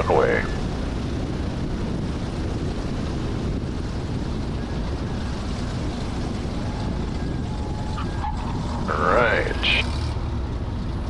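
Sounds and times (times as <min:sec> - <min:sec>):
low even rumble: 0:00.0 - 0:11.0.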